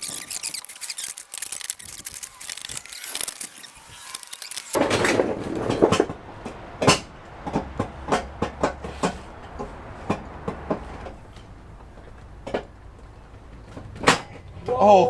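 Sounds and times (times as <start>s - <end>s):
metal scraping and rustling: 0.0s - 14.7s
sharp metal knocks and clanks: 4.1s - 14.6s.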